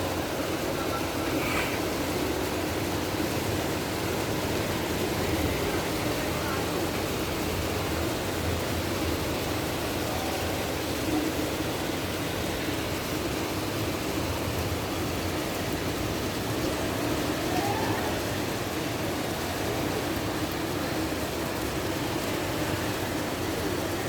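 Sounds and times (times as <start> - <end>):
heavy rain on a road: 0.0 - 24.0.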